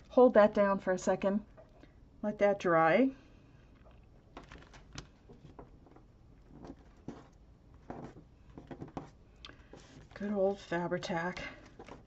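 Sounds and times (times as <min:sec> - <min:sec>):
paper rustling and tapping: 0:04.4 - 0:10.2, 0:11.6 - 0:12.0.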